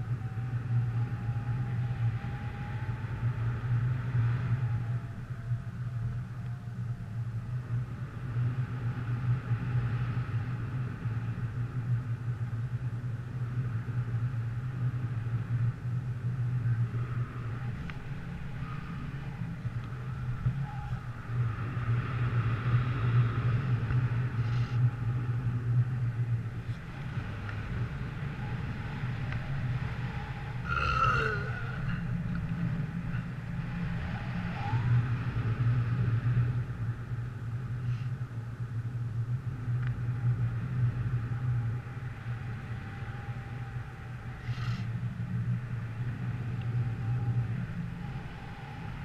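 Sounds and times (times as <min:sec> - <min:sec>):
vehicle engine droning: 0:00.0 - 0:49.0
wavering squeal: 0:16.6 - 0:21.8, 0:28.0 - 0:35.4.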